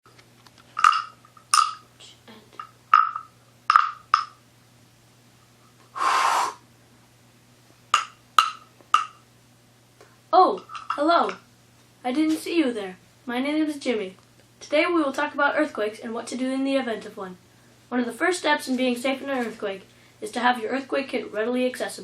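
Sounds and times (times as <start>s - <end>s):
steady low hum: 0.1s - 22.0s
burst of hiss: 5.9s - 6.6s.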